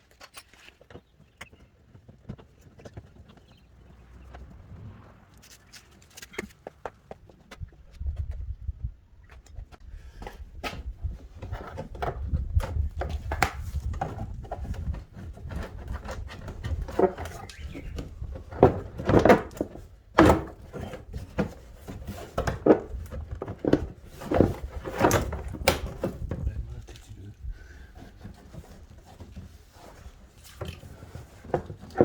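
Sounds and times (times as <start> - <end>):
irregular knocks and clatters: 9.2 - 26.7, 27.8 - 32.0.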